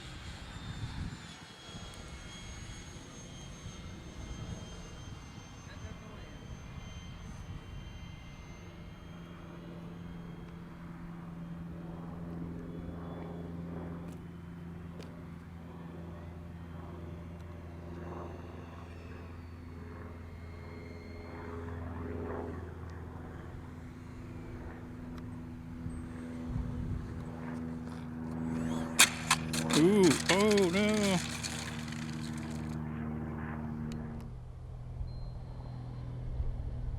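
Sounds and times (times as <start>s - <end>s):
high whining tones: 28.3s - 32.8s.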